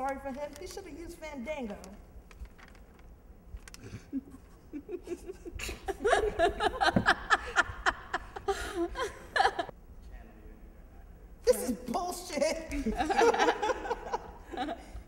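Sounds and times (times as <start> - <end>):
people laughing: 3.8 - 9.7, 12.7 - 15.0.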